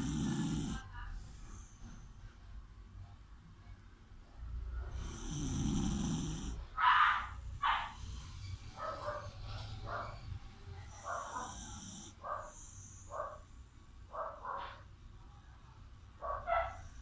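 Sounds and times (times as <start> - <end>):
dog snoring: 0.0 - 2.2, 4.6 - 6.8, 10.8 - 13.4.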